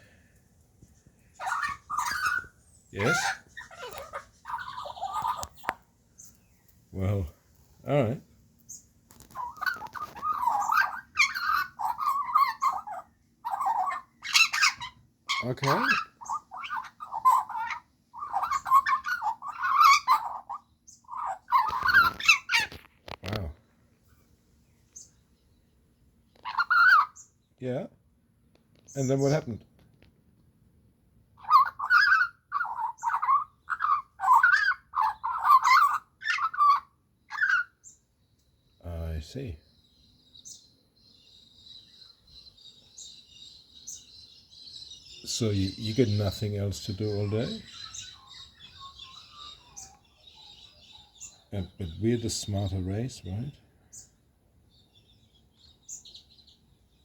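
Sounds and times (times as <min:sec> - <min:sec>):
magpie warbling and chattering: 0:01.4 - 0:05.8, 0:09.2 - 0:22.8, 0:26.4 - 0:27.3, 0:31.4 - 0:37.9, 0:45.2 - 0:50.0.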